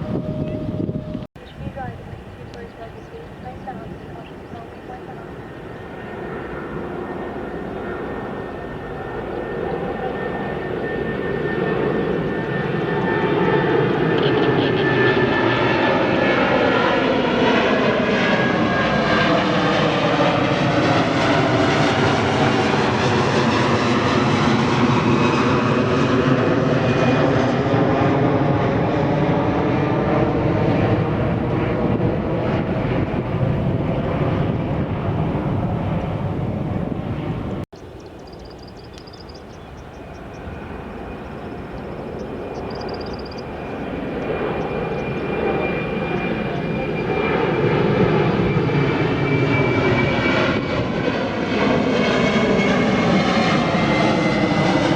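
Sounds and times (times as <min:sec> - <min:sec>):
jet airliner engine noise: 0:00.0 - 0:54.9
faint high whine: 0:37.8 - 0:47.8.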